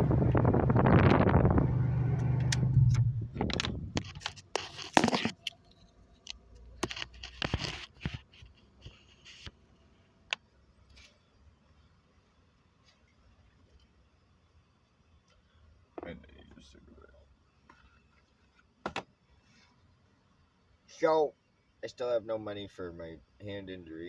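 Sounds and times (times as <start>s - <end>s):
vehicle engine running: 0.0s - 4.1s.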